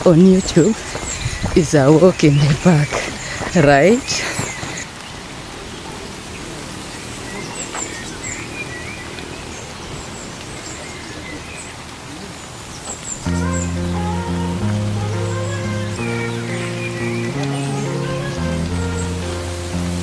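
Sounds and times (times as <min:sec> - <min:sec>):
birds chirping: 0:00.0 - 0:20.0
outdoor background hiss: 0:00.0 - 0:20.0
music with held notes: 0:13.3 - 0:20.0.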